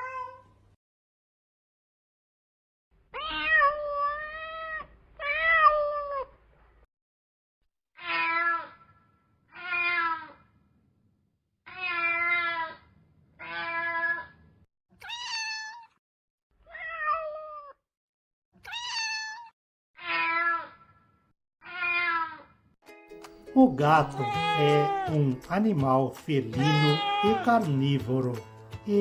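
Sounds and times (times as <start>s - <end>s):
cat meowing: 0.0s - 0.6s, 3.1s - 6.4s, 8.0s - 8.9s, 9.5s - 10.4s, 11.7s - 12.8s, 13.4s - 14.4s, 15.0s - 16.0s, 16.6s - 17.8s, 18.6s - 21.0s, 21.6s - 22.6s, 23.9s - 25.3s, 26.6s - 27.8s.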